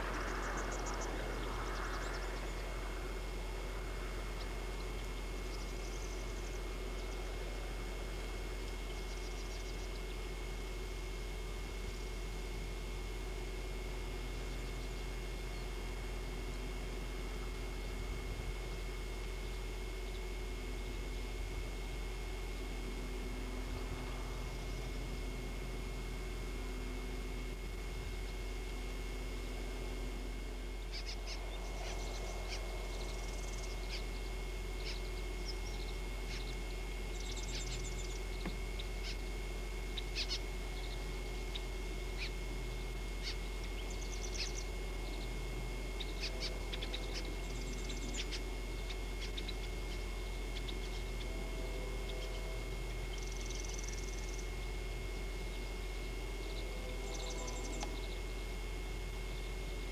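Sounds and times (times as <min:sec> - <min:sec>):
birds chirping: 0:00.0 - 0:59.9
electronic hum and hiss: 0:00.0 - 0:59.9.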